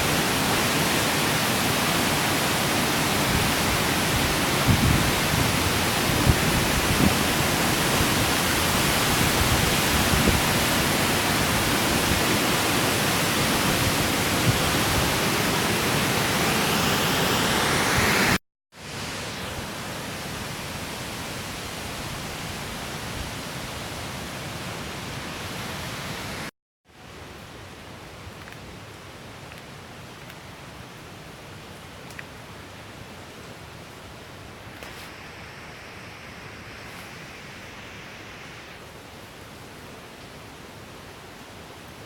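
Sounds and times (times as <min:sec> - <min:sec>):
waterfall rushing: 0:00.0 - 0:22.8.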